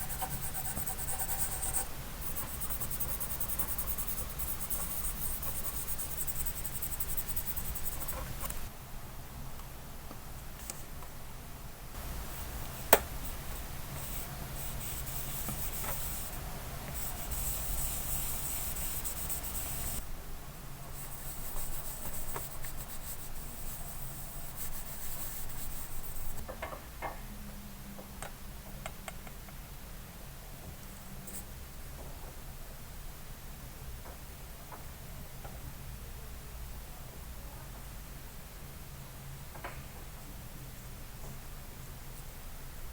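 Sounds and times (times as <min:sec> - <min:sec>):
hand rubbing on model car: 0:00.0 - 0:08.7, 0:12.0 - 0:20.0, 0:21.0 - 0:26.4
hiss: 0:16.9 - 0:20.0.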